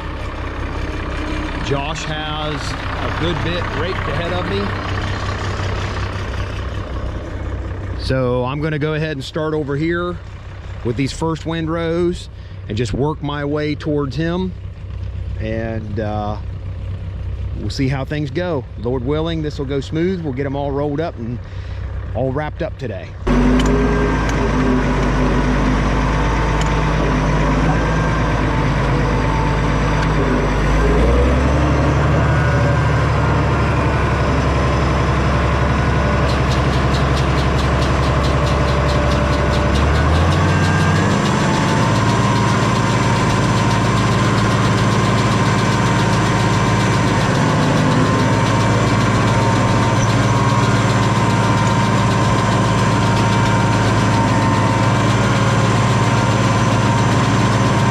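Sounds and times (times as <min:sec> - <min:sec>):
tractor engine running: 0:00.0 - 0:57.9
fast ticking rattle: 0:36.1 - 0:57.9.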